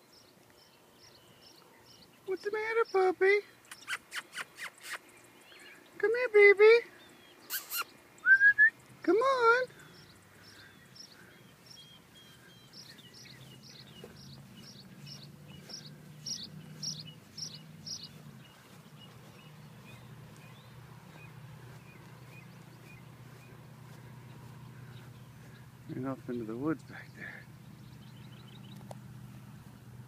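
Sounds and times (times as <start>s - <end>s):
bird high chirps: 3.6s - 6.0s, 7.0s - 8.9s, 9.6s - 28.9s
steady low hum: 6.9s - 30.0s.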